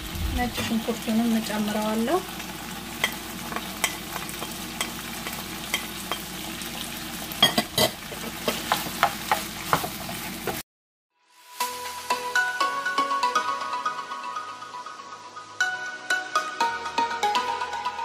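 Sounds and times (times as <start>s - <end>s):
food sizzling in a frying pan: 0.0s - 10.6s, 11.3s - 13.1s
spoon scraping a pan: 2.9s - 6.4s, 7.3s - 10.6s.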